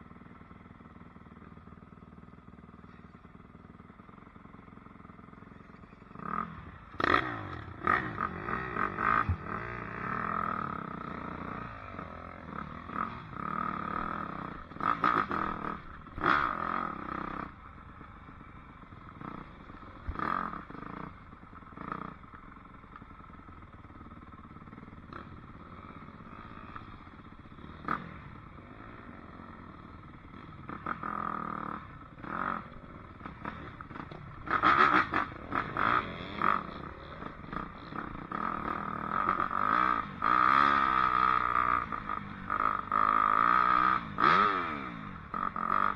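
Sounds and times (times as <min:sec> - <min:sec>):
dirt bike engine revving: 0:06.2 - 0:17.6, 0:30.3 - 0:45.9.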